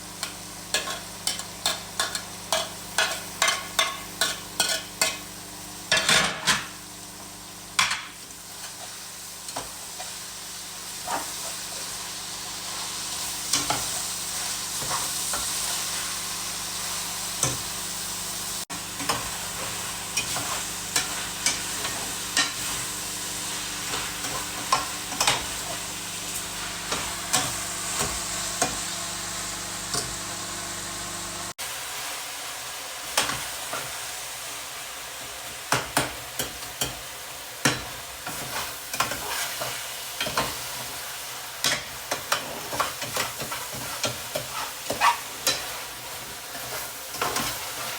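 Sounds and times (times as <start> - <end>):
liver sizzling in a pan: 0.0 - 47.9
utensil scraping a pan: 42.4 - 47.9.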